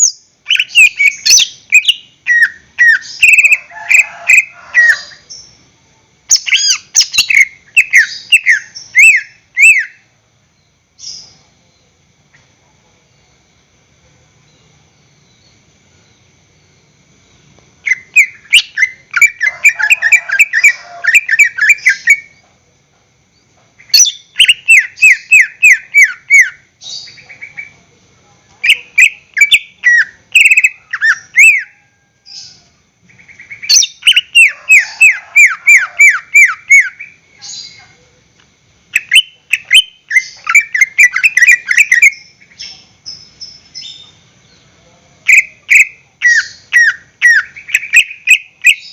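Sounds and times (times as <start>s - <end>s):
bird chattering song: 0.0s - 5.6s, 6.3s - 10.1s, 17.8s - 22.5s, 23.4s - 27.8s, 28.6s - 38.0s, 38.9s - 48.9s.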